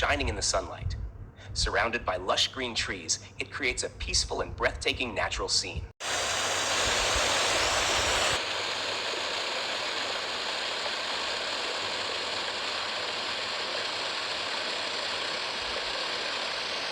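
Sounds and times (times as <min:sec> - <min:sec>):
waterfall rushing: 0:06.0 - 0:08.4.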